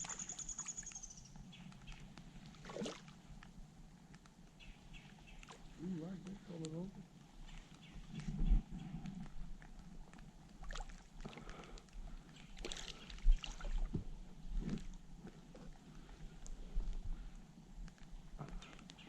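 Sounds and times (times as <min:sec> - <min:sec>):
water sloshing and splashing: 0:01.8 - 0:03.4, 0:10.5 - 0:16.2.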